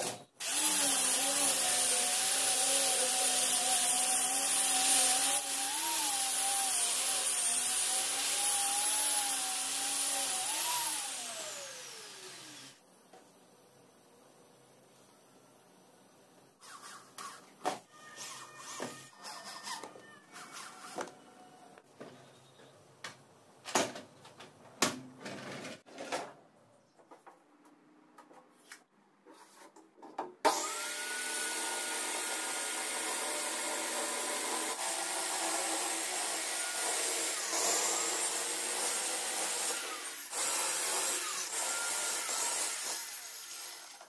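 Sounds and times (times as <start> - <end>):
circular saw cutting wood: 0.4 - 12.8, 30.5 - 44.0.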